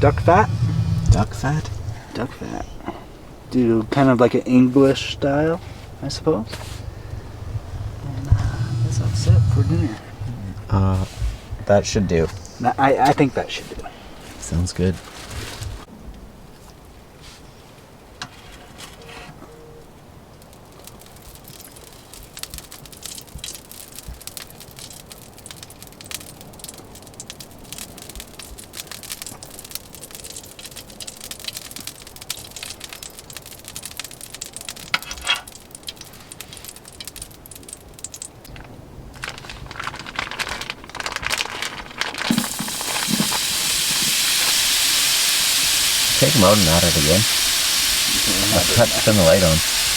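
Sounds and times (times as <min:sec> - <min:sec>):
food sizzling in hot fat: 0:00.0 - 0:02.6, 0:04.7 - 0:10.0, 0:41.8 - 0:49.9
crackling and crinkling: 0:00.0 - 0:15.9, 0:16.5 - 0:19.5, 0:20.3 - 0:49.9.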